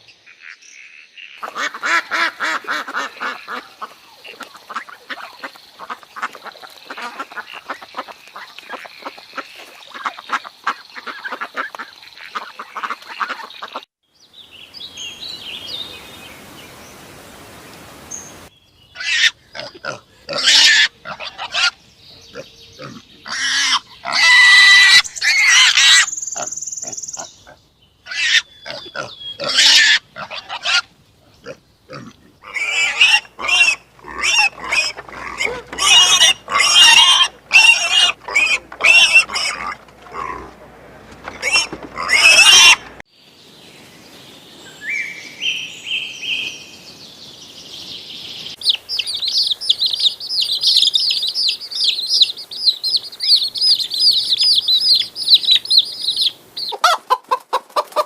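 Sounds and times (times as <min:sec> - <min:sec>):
harsh animal cries: 0:19.0 - 0:21.7, 0:28.1 - 0:40.6, 0:41.3 - 0:43.0
high bird chirping: 0:25.0 - 0:27.5, 0:48.4 - 0:56.8.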